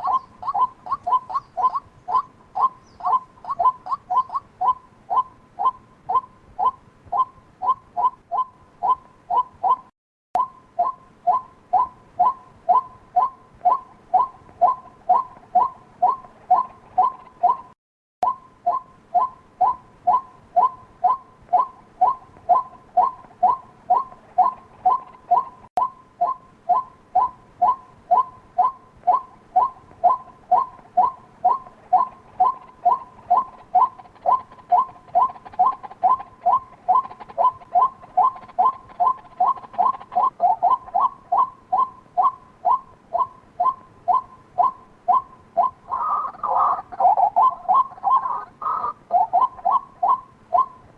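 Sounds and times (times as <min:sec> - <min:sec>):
waterhen calling: 0:00.0 - 0:50.9.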